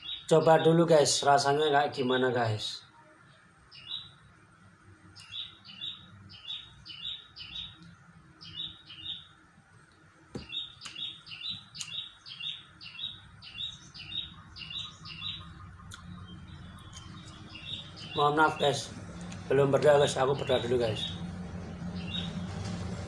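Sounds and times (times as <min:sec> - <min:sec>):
small bird chirping: 0:00.0 - 0:00.7, 0:03.3 - 0:04.3, 0:05.1 - 0:09.4, 0:10.4 - 0:22.6.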